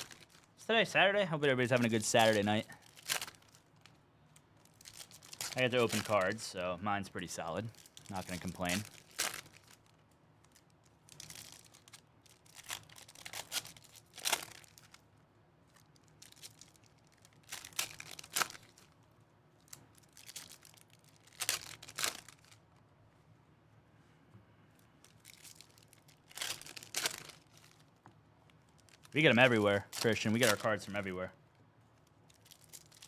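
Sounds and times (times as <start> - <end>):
foil wrappers tearing and crinkling: 0.0 - 0.6, 1.4 - 4.0, 4.6 - 6.5, 7.2 - 15.0, 15.7 - 19.0, 19.6 - 22.6, 25.0 - 28.0, 28.7 - 31.2, 32.0 - 33.0.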